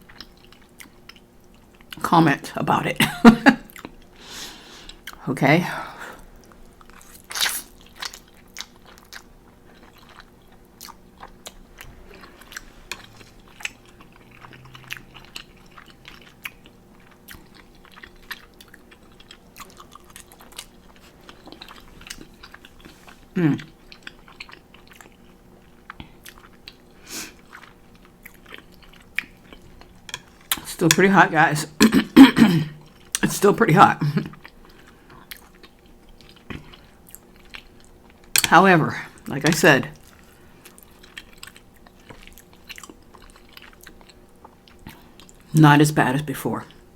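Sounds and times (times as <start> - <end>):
wet chewing of noodles: 0.0 - 2.0, 3.5 - 5.2, 6.1 - 45.5.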